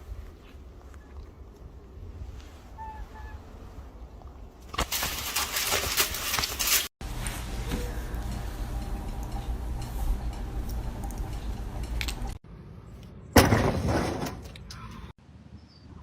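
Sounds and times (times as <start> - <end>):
sudden loud crash: 13.3 - 14.5.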